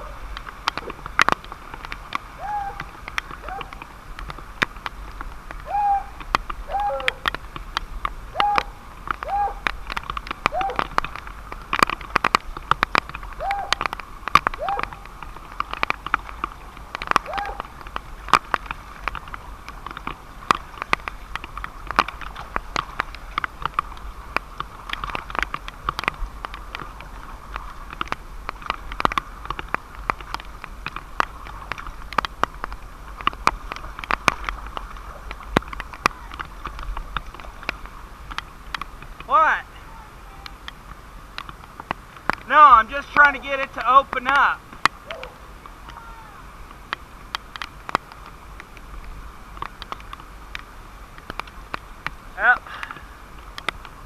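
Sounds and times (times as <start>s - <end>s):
dripping water ticks: 0.0s - 54.0s
running water: 0.0s - 54.0s
short hooting calls: 2.4s - 2.8s, 5.7s - 7.2s.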